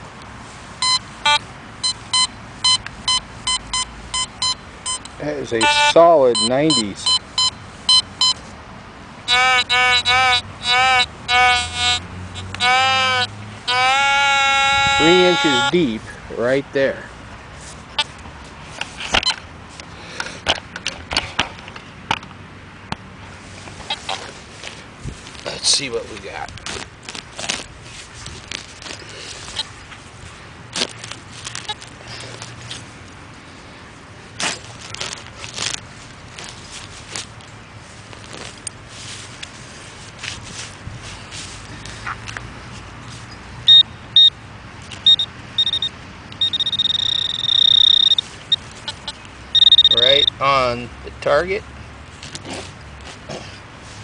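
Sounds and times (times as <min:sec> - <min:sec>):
high-pitched pinpointer beeping: 0:00.8 - 0:08.4, 0:43.7 - 0:44.3, 0:45.0 - 0:50.4
gear and tools clicking: 0:44.9 - 0:48.2.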